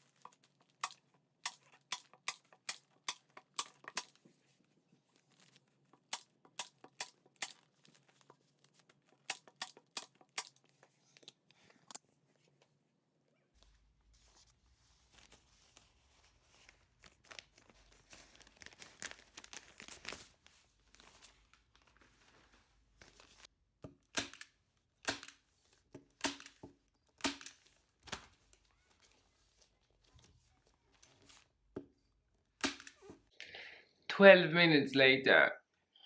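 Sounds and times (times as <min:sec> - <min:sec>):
plastic crinkling and tearing: 0:00.0 - 0:06.1, 0:06.7 - 0:11.6, 0:15.0 - 0:23.5
sharp plastic snaps: 0:00.1 - 0:04.2, 0:05.9 - 0:07.7, 0:09.1 - 0:12.0, 0:23.9 - 0:25.4, 0:26.0 - 0:28.4, 0:32.6 - 0:33.2.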